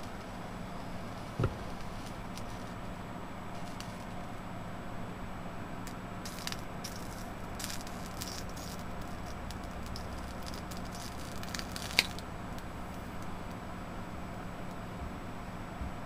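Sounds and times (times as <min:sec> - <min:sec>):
steady low hum: 0:00.0 - 0:16.0
meat crackling on hot chip: 0:06.3 - 0:13.6.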